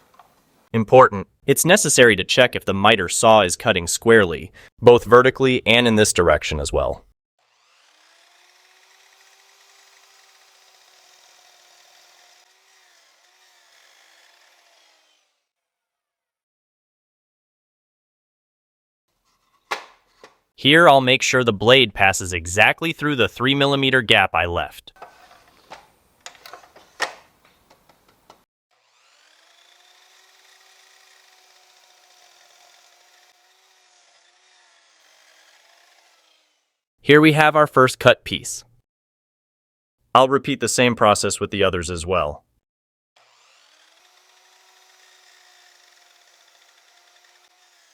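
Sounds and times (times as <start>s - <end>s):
miter saw cutting wood: 7.4s - 16.1s, 28.7s - 36.8s, 43.2s - 47.9s.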